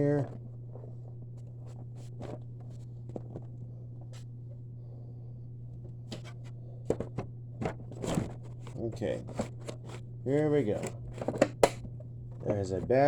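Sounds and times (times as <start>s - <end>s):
steady low hum: 0.0s - 13.0s
hands clicking and knocking plastic: 10.7s - 12.9s.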